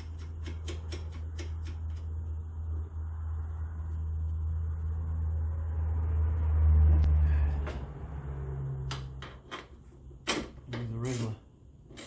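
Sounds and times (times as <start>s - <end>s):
machine low hum: 0.0s - 9.0s.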